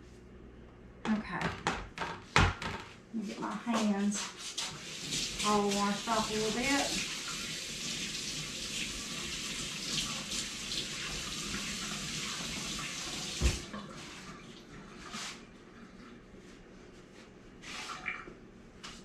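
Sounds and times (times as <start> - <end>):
tap water running into sink: 4.6 - 14.8.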